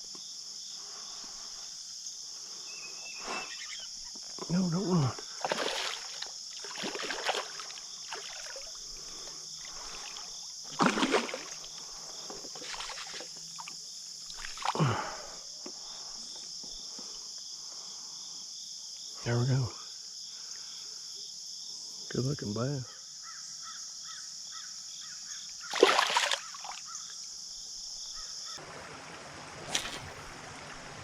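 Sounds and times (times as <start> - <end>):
insects chirring: 0.0 - 30.9
fish splashing in water: 5.3 - 8.8, 9.6 - 14.8, 25.7 - 26.8, 29.5 - 30.7.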